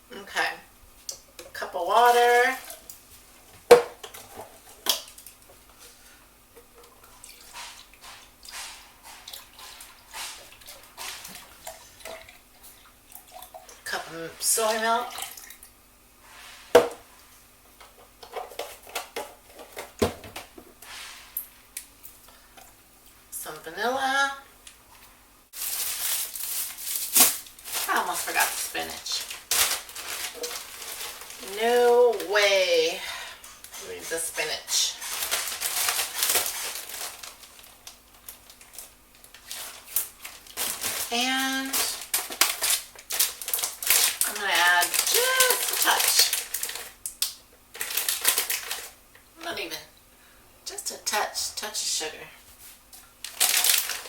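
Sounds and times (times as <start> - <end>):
spinach leaves rustling: 25.5 - 33.0, 33.8 - 47.0, 47.7 - 49.0, 52.6 - 54.0.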